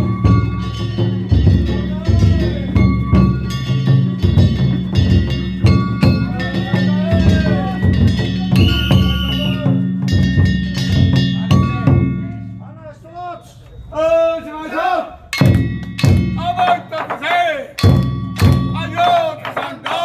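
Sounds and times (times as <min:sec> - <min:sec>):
drum beating: 0:00.0 - 0:12.6, 0:15.3 - 0:20.0
hand gongs ringing: 0:00.0 - 0:12.7, 0:15.3 - 0:19.6
voices calling: 0:00.0 - 0:20.0
whistle blowing: 0:08.6 - 0:09.8.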